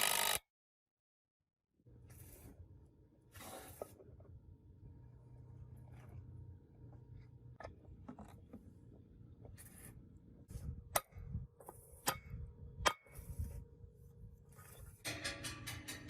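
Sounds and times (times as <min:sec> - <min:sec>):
sharp clicks and knocks: 0:15.0 - 0:16.0.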